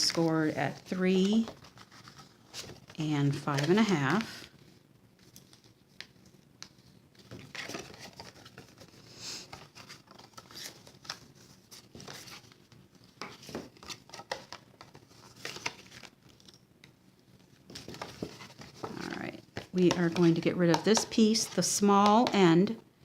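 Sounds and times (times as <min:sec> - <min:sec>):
stiff paper rustling and creasing: 0:00.0 - 0:16.5, 0:17.3 - 0:20.4.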